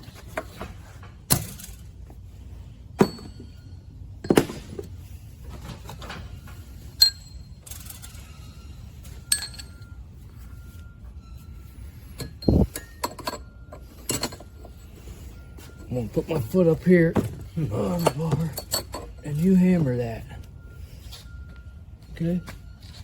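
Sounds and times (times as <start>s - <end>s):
metal-on-metal clinks: 3.0s - 4.4s, 6.9s - 10.0s, 12.1s - 14.8s, 17.5s - 19.6s.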